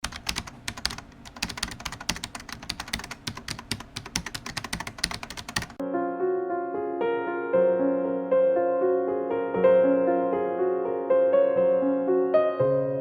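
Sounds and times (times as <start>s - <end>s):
typing clicks: 0.0s - 5.8s
soft piano music: 5.3s - 13.0s.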